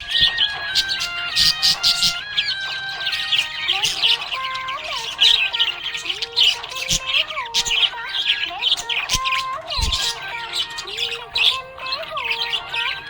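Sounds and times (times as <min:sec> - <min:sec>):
background music: 0:00.0 - 0:13.0
budgies chirping: 0:00.0 - 0:13.0.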